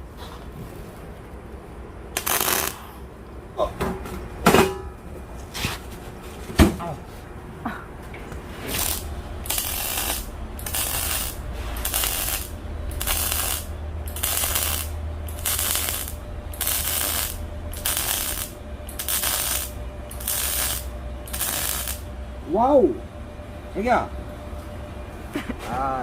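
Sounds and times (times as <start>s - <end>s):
low hum: 0.0s - 26.0s
arc welding crackle: 2.1s - 3.0s, 8.3s - 22.6s.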